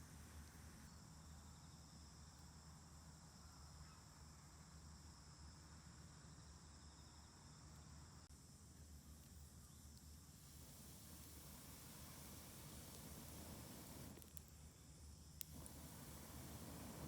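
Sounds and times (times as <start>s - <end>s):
crickets chirping: 0.8s - 17.0s
low steady hum: 8.3s - 17.0s.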